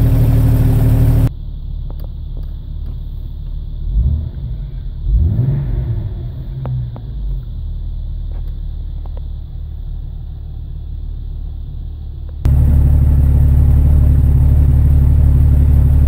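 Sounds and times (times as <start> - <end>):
car engine idling: 0.0 - 16.0
exhaust rumble: 0.0 - 16.0.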